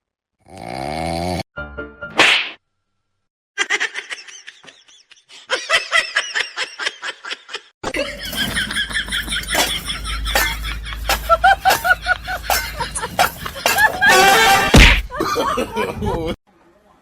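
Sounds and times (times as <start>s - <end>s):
rapid giggling: 3.7s - 16.4s.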